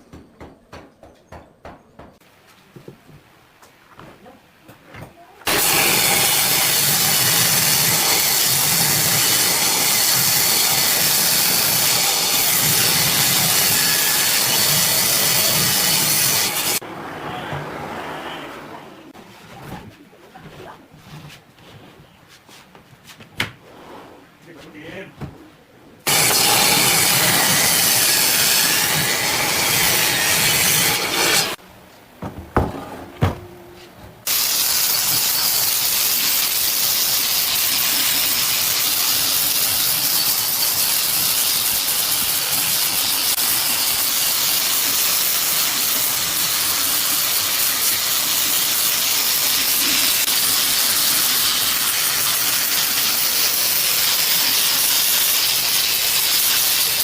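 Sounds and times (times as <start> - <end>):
loud hissing: 5.5 - 16.8, 26.1 - 31.6, 34.3 - 57.0.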